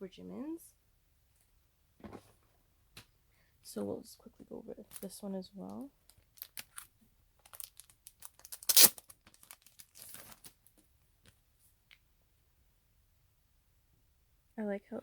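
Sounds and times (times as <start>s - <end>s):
packaging crinkling and rustling: 6.0s - 10.9s
loud ripping burst: 8.5s - 9.1s.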